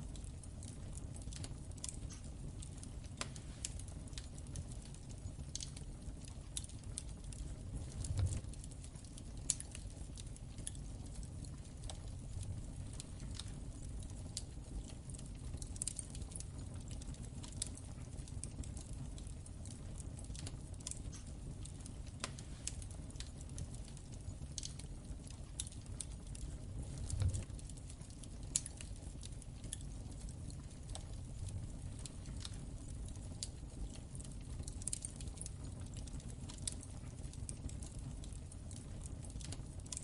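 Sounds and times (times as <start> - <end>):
low rumble of flames: 0.0 - 40.0
wood fire crackling: 0.0 - 40.0.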